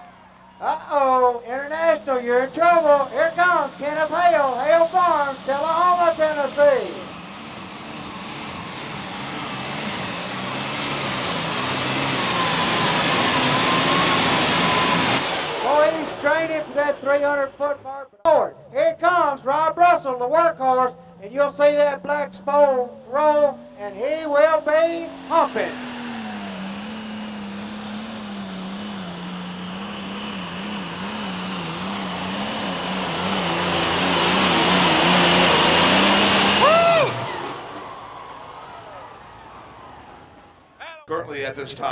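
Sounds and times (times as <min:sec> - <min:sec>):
high steady whine: 0:00.0 - 0:18.0, 0:21.0 - 0:40.8
tractor diesel engine under load: 0:00.0 - 0:18.1, 0:18.7 - 0:41.2.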